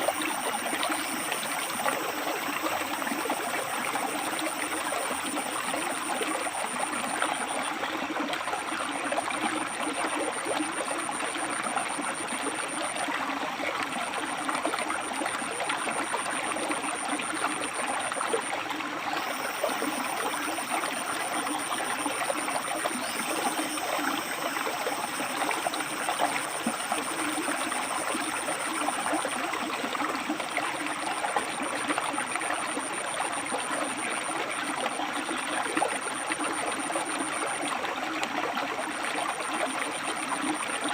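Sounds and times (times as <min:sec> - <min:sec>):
faint high whine: 0:00.0 - 0:07.8, 0:14.8 - 0:37.6.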